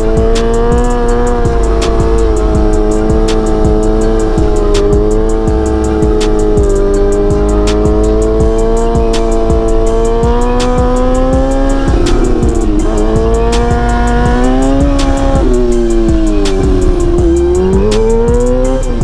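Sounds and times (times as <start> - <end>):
background music with steady beat: 0.0 - 19.0
motorcycle engine running: 0.0 - 19.0.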